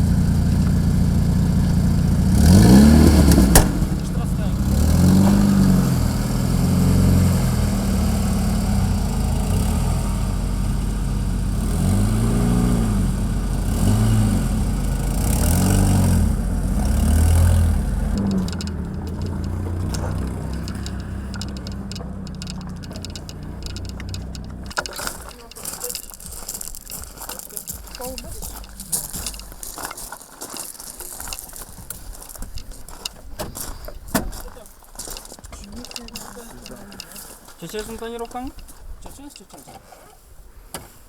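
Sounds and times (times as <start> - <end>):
car engine revving: 0.0 - 29.8.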